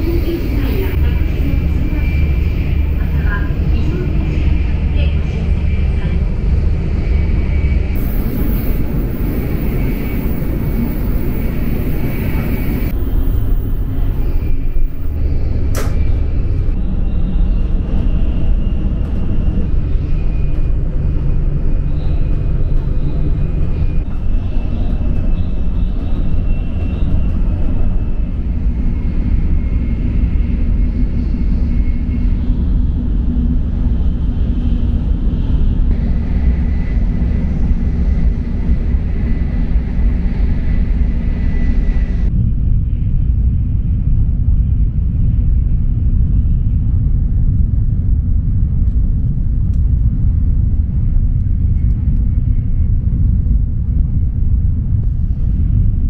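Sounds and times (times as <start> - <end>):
train rumble from inside car: 0.0 - 56.0
sharp click: 15.7 - 16.1.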